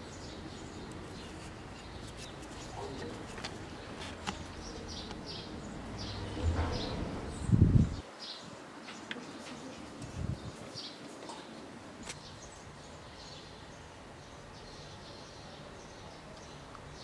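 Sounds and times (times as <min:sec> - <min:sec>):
outdoor background noise: 0:00.0 - 0:17.0
small birds chirping: 0:00.0 - 0:17.0
loud low rumble: 0:05.8 - 0:08.0.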